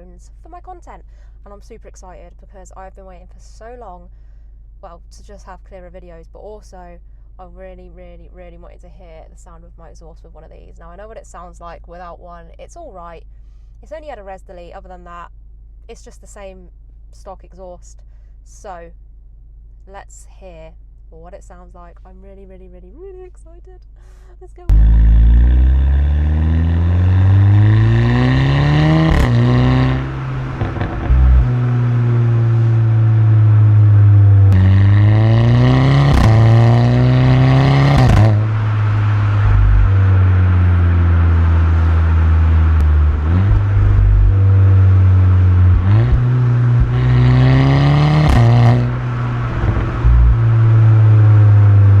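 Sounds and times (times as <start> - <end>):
exhaust crack: 24.6 - 52.0
car engine revving: 24.7 - 52.0.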